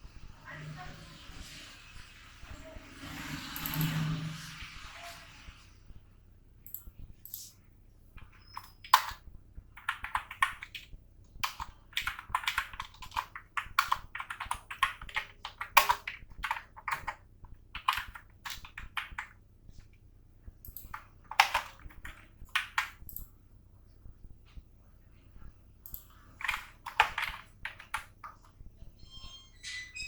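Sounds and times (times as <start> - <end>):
keyboard typing: 3.4 - 4.2, 8.2 - 19.4, 20.6 - 23.3, 25.8 - 28.6.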